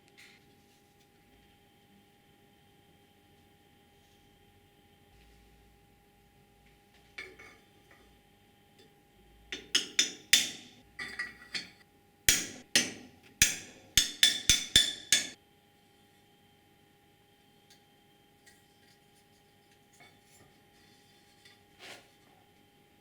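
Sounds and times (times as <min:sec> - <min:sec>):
sharp ringing knocks: 0:12.3 - 0:15.4.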